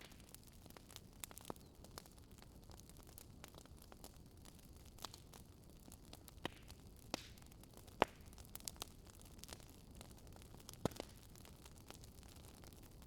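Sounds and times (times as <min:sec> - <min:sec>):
low hiss of burning: 0:00.0 - 0:13.0
wood fire crackling and popping: 0:00.0 - 0:13.0.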